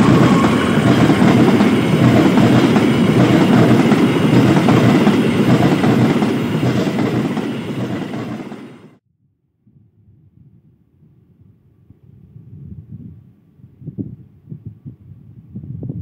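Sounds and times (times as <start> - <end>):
train wheels clattering on rails: 0.0 - 9.0.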